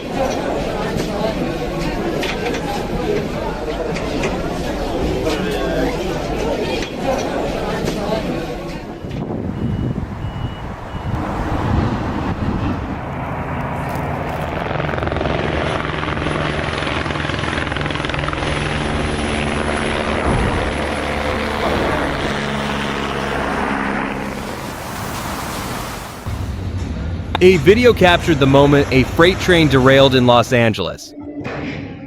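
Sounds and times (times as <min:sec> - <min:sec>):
large engine droning: 0:00.0 - 0:30.4
rushing noise: 0:08.9 - 0:15.0, 0:21.4 - 0:30.6.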